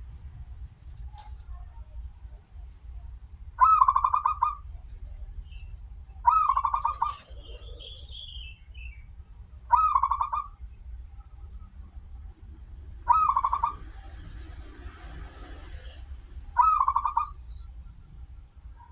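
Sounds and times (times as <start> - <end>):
steady low rumble: 0.0 - 18.9
dove cooing: 3.6 - 5.3, 6.2 - 8.5, 9.7 - 10.6, 13.0 - 14.2, 16.6 - 17.6
faint high bird chirp: 3.6 - 11.8, 16.6 - 18.9.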